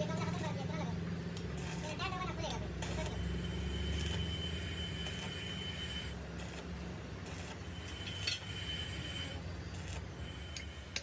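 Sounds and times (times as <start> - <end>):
workshop machine humming: 0.0 - 11.0
thin high whine: 7.3 - 11.0.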